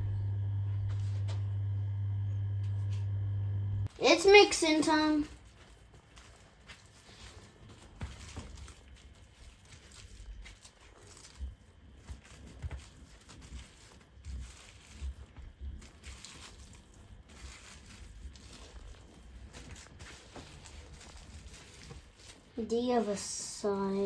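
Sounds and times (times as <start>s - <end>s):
wet handling of raw chicken: 5.3s - 22.6s.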